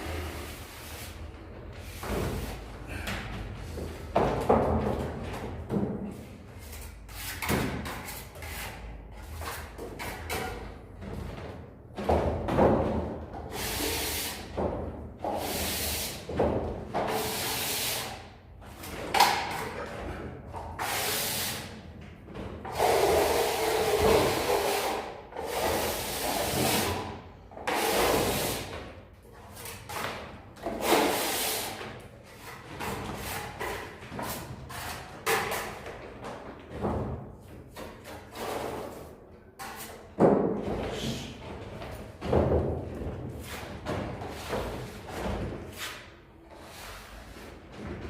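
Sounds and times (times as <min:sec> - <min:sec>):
trowel scraping plaster: 0:06.6 - 0:10.5, 0:22.7 - 0:28.7, 0:30.6 - 0:35.8.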